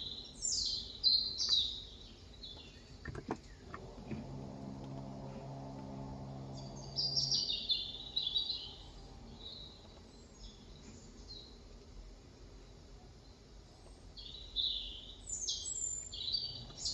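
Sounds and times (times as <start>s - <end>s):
small birds twittering: 0.0s - 16.9s
low steady hum: 2.6s - 14.1s.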